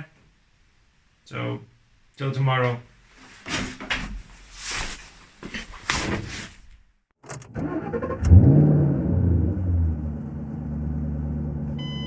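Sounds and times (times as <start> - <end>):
irregular clattering and rustling: 3.2 - 6.8.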